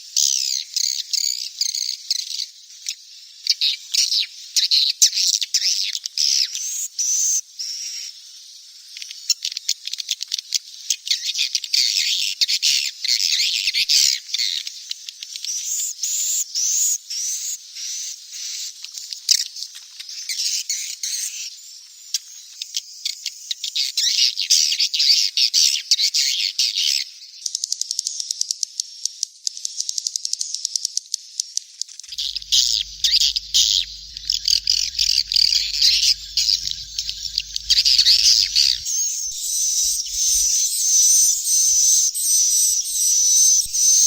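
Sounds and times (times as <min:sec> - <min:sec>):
chicks twittering: 0:32.1 - 0:44.0.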